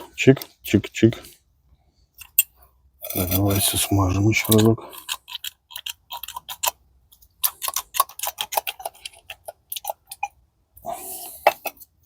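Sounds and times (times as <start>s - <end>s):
metallic clicks of gearbox parts: 4.4s - 4.8s.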